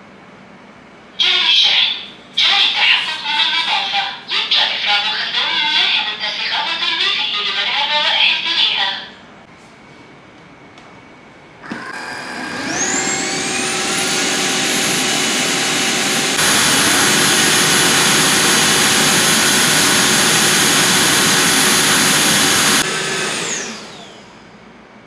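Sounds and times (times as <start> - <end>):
floor washer motor whining: 11.6 - 24.8.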